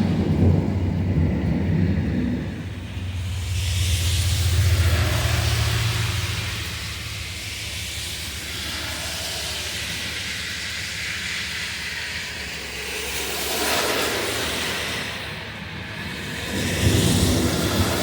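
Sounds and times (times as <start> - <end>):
heavy rain hissing: 2.3 - 18.0.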